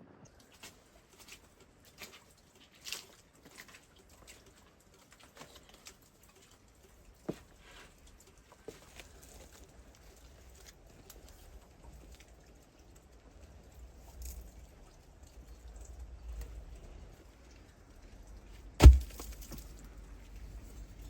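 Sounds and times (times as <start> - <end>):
sharp knock: 18.8 - 19.3.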